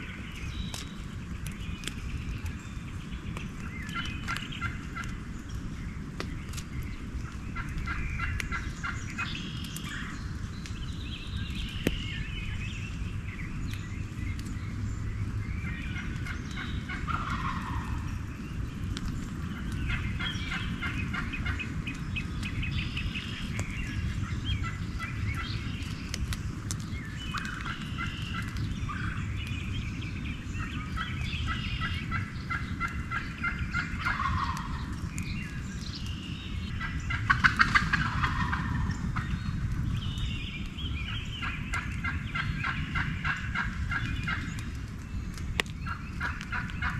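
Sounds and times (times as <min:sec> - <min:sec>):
low background rumble: 0:00.0 - 0:46.9
turkeys gobbling: 0:16.0 - 0:18.1, 0:31.0 - 0:34.9, 0:36.8 - 0:39.0, 0:41.4 - 0:44.4, 0:45.8 - 0:46.9.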